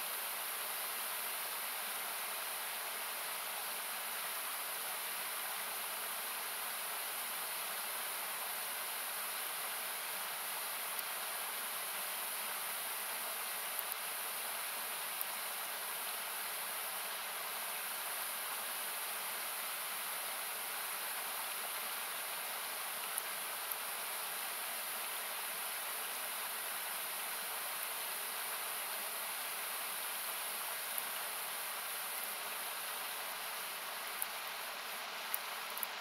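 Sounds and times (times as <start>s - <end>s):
campfire crackling: 10.6s - 11.2s, 12.3s - 15.4s, 27.7s - 36.0s.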